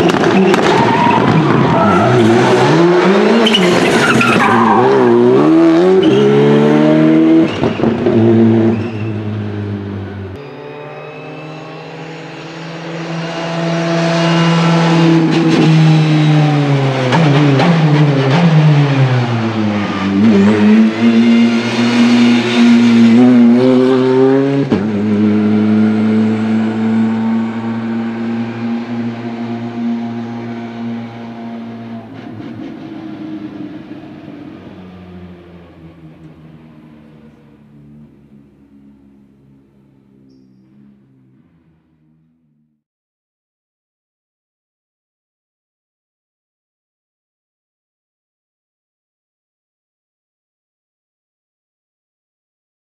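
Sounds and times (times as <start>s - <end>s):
rally car engine revving: 0.0s - 42.2s.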